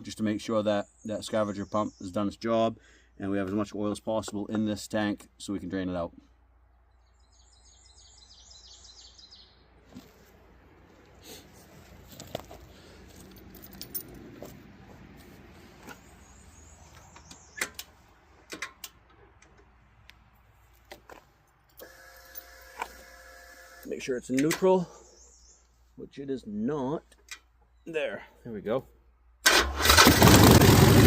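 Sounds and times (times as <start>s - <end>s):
keys jangling: 13.2s - 14.4s.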